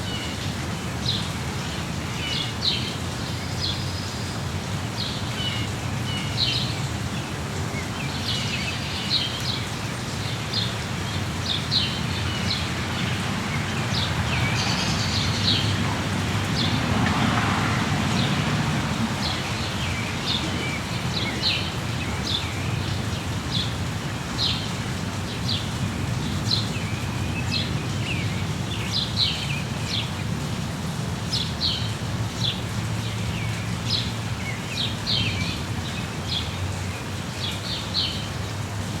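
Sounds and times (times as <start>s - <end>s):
birds chirping: 10.4s - 30.2s.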